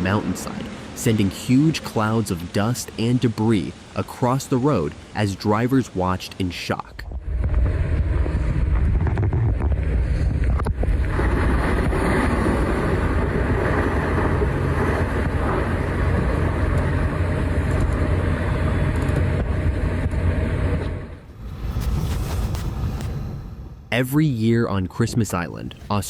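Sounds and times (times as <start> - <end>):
falling rock rumbling: 7.0 - 12.5
rushing noise: 20.6 - 24.6.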